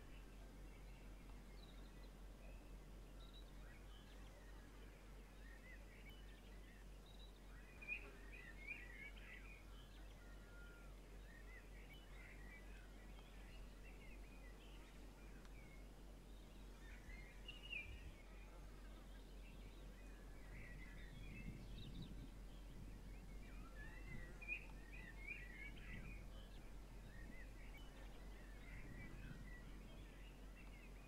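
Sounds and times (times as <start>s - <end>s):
faint birds chirping: 0.0s - 31.0s.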